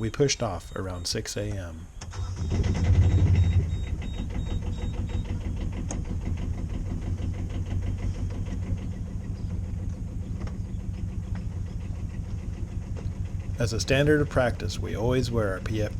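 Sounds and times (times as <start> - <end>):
boat engine chugging: 2.3 - 15.9.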